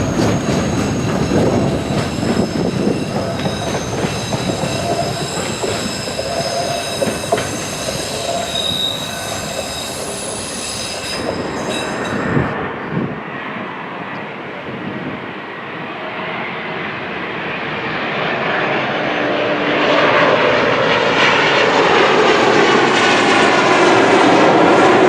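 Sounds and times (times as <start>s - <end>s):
train wheels squealing: 0.0s - 12.6s
rumble of wheels on track: 0.0s - 17.5s.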